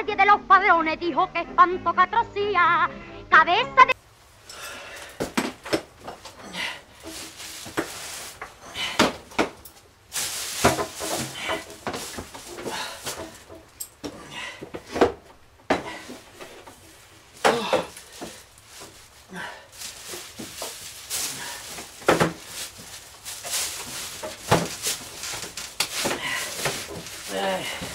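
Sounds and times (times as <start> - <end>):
objects knocking and clattering: 5.0 - 19.1, 19.8 - 27.9.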